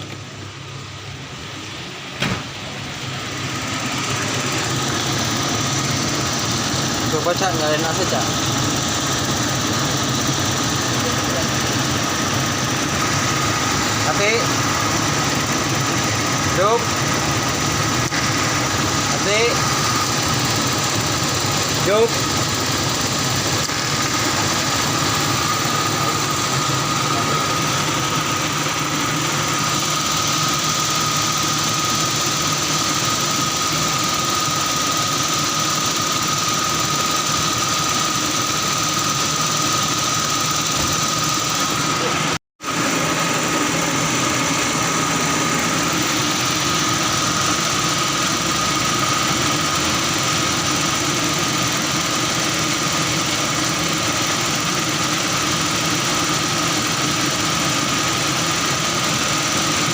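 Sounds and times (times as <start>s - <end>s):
car engine running: 0.0s - 59.9s
steady high tone: 16.1s - 42.4s.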